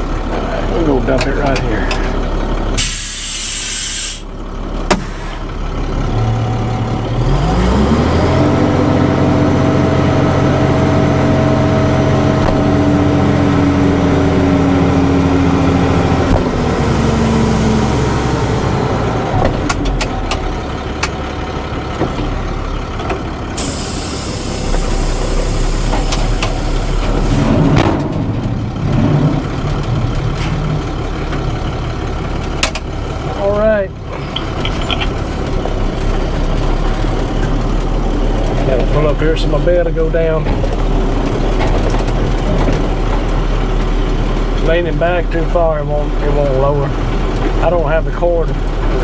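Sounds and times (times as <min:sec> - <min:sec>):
dump truck engine revving: 0:00.0 - 0:49.0
rush of dumped load: 0:23.6 - 0:29.4.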